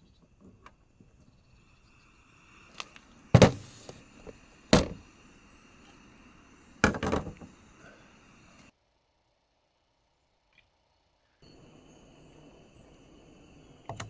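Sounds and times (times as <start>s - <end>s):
short rattle: 2.8s - 5.2s
heavy thunks: 3.4s - 5.1s.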